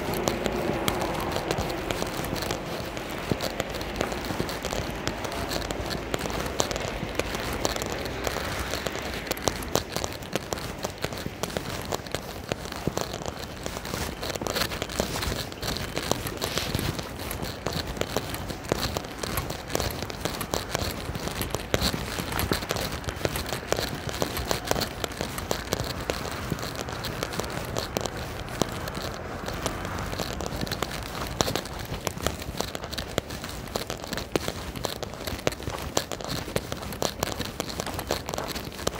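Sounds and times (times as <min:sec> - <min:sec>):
rain hitting microphone: 0:00.0 - 0:13.1, 0:23.6 - 0:31.9.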